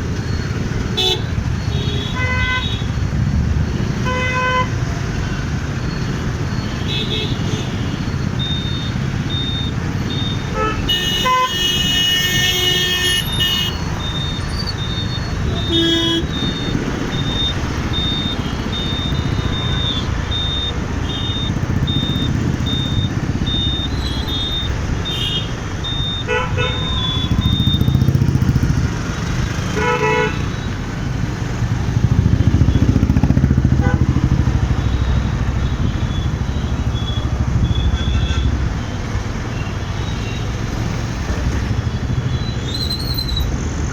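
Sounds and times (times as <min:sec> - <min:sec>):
traffic engines and wind rumble: 0:00.0 - 0:43.9
vehicle horns honking: 0:00.9 - 0:03.0, 0:03.9 - 0:05.4, 0:06.6 - 0:28.9, 0:29.5 - 0:30.7, 0:32.3 - 0:38.7
high pulsing beep: 0:07.5 - 0:10.5, 0:13.7 - 0:25.1, 0:25.8 - 0:29.6, 0:34.4 - 0:38.4.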